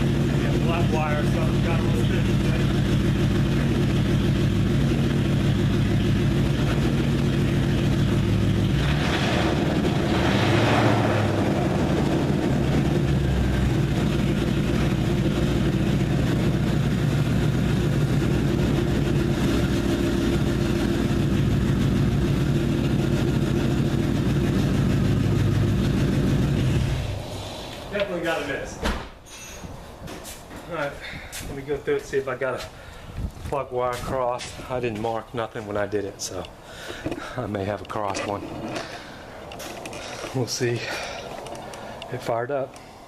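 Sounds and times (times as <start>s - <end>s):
loud engine with misfire: 0.0s - 27.9s.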